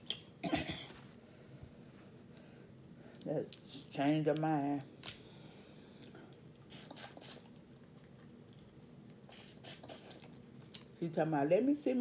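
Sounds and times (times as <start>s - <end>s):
chewing and lip-smacking: 6.0s - 8.8s.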